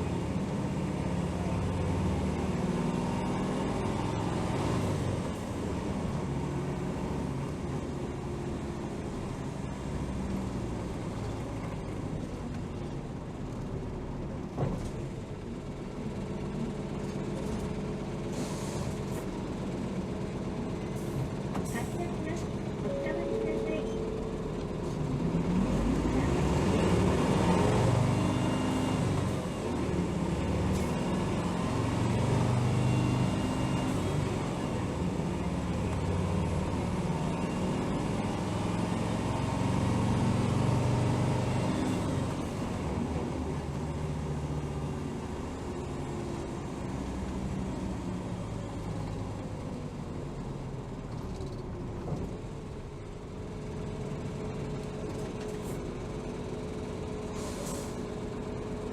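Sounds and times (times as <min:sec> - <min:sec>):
bus diesel engine running: 0:00.0 - 0:58.9.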